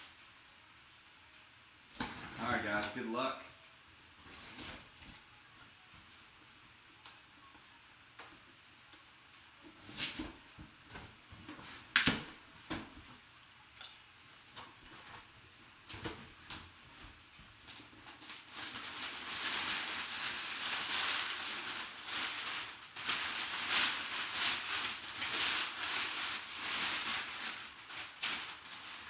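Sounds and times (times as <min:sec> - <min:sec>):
packing material crinkling: 0:14.5 - 0:29.0.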